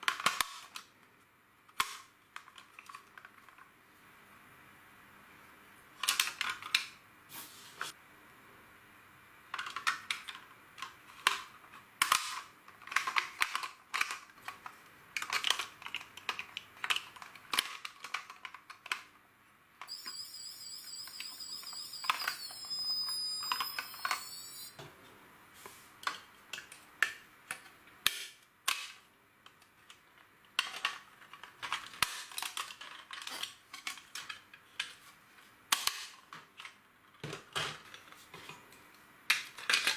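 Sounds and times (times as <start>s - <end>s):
high warbling electronic tone: 19.9s - 24.7s.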